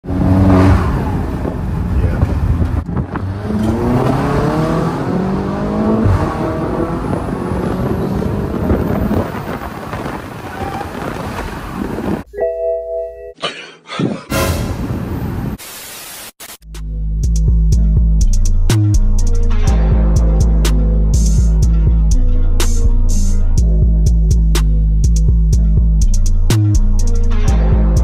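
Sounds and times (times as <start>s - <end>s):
car engine accelerating: 0.0s - 12.1s
road noise: 0.0s - 12.3s, 14.3s - 15.6s.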